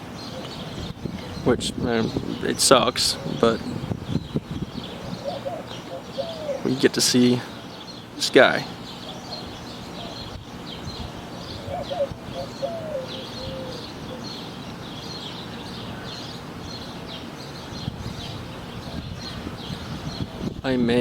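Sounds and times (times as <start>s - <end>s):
outdoor background noise: 0.0s - 21.0s
small birds chirping: 0.0s - 21.0s
faint wavering lower bird call: 11.3s - 14.4s.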